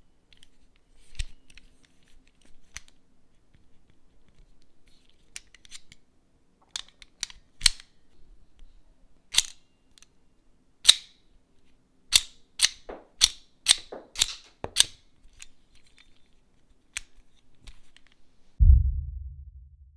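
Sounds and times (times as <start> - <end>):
toy gun model clicking: 6.8 - 7.9, 9.3 - 9.6, 12.1 - 15.5
low thud: 18.6 - 19.9.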